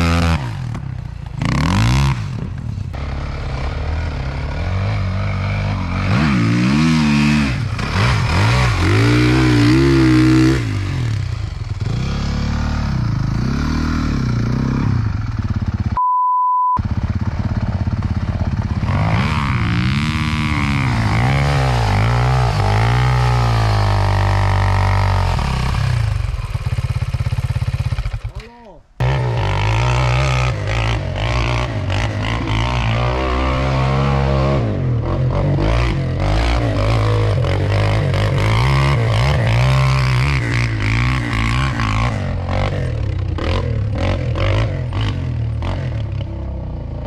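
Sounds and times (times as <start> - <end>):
motorcycle engine revving: 0.0 - 16.0, 16.8 - 47.0
short beep: 16.0 - 16.8.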